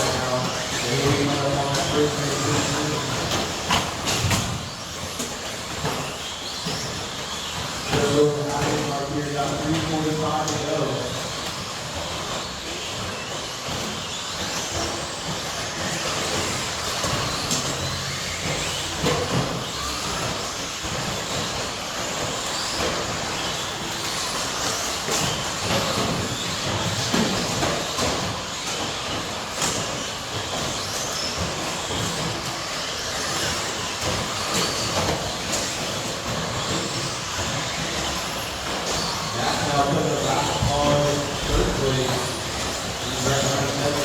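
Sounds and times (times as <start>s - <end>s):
toy truck tyre noise: 0.0s - 44.0s
electric motor whine: 11.9s - 44.0s.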